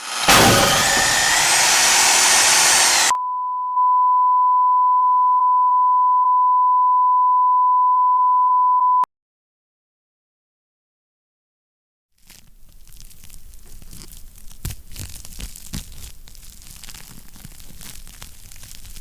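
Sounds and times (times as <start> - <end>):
harsh hissing noise: 0.0 - 3.1
steady electronic beep tone: 3.1 - 9.1.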